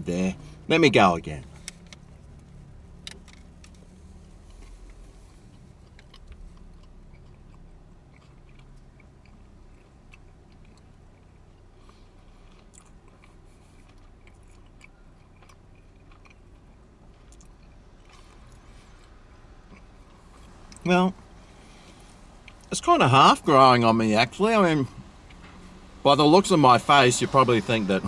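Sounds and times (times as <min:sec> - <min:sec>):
man chewing: 0:01.5 - 0:22.7.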